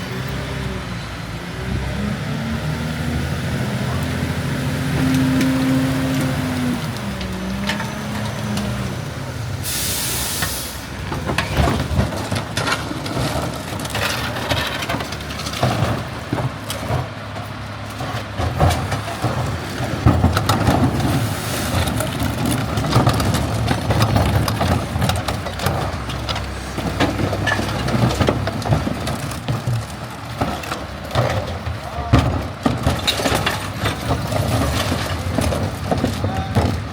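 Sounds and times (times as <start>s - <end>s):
garbage truck engine running: 0.0s - 36.9s
air brake hiss: 9.6s - 10.8s
sharp knocks and clatter: 11.0s - 36.9s.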